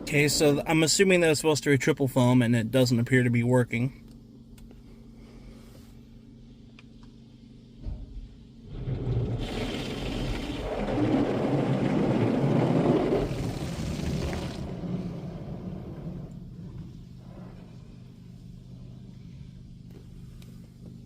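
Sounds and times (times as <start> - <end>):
steady low hum: 0.0 - 21.0
water spray drumming on car: 8.8 - 17.6.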